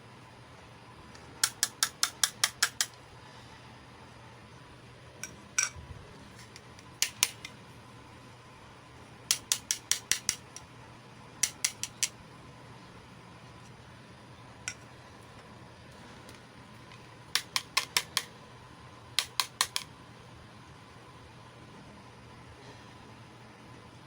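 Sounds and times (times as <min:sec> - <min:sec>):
plastic toy pieces clicking: 0:07.0 - 0:07.5, 0:09.3 - 0:10.6, 0:11.4 - 0:12.1, 0:17.4 - 0:18.3, 0:19.2 - 0:19.9.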